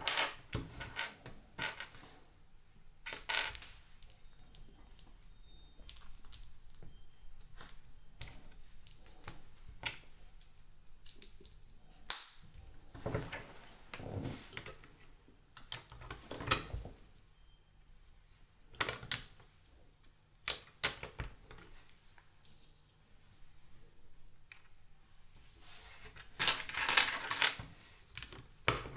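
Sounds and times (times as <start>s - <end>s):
plastic bricks clicking together: 5.8s - 6.9s, 10.4s - 12.4s
plastic pieces clattering: 5.8s - 6.9s.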